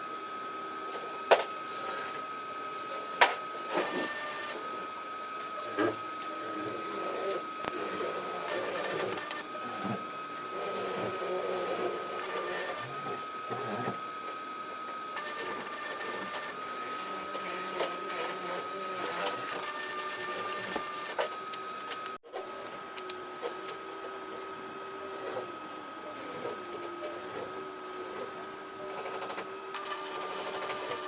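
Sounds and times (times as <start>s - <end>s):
welding arc crackling: 15.2s - 16.6s.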